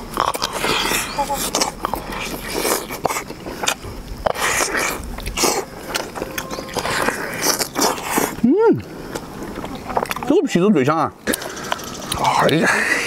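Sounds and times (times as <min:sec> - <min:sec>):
person biting and chewing: 0:00.0 - 0:10.3.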